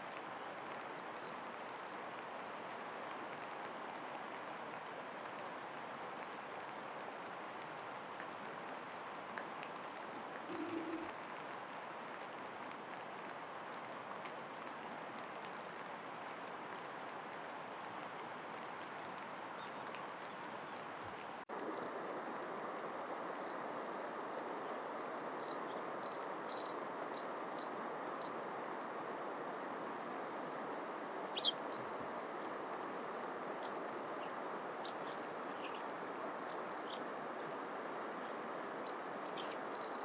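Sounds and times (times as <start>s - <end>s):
outdoor background hiss: 0.0s - 40.0s
bird chirping: 0.8s - 1.3s, 10.4s - 11.1s, 23.4s - 23.6s, 25.2s - 28.3s, 31.3s - 32.4s, 38.8s - 40.0s.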